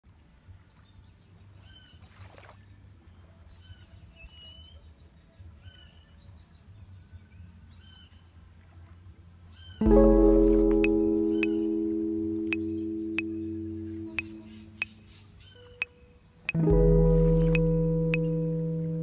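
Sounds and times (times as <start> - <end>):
faint low rumble: 7.5 - 15.4, 16.6 - 19.0
birds calling: 9.5 - 18.6.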